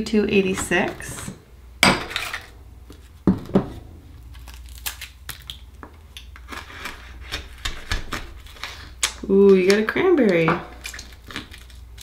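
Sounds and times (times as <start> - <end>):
oyster shell cracking: 4.2 - 6.6, 7.3 - 12.0
small clicks and crunches: 4.2 - 12.0.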